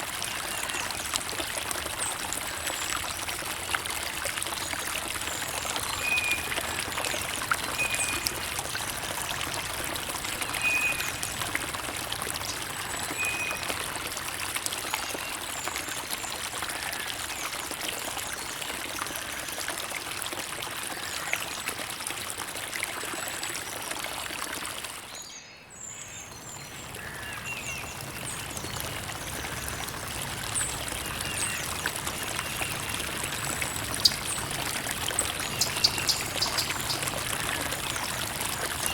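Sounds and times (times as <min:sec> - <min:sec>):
creek water babbling: 0:00.0 - 0:38.9
bird chirps: 0:35.5 - 0:37.0.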